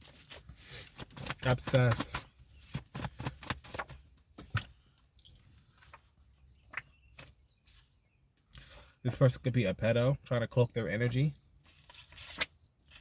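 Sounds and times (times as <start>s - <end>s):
cards being shuffled: 0.9s - 4.5s, 11.7s - 13.0s.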